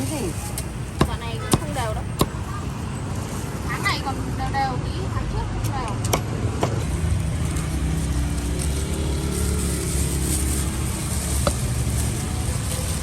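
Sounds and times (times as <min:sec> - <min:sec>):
street traffic: 0:00.0 - 0:13.0
vehicle engine running: 0:06.7 - 0:13.0.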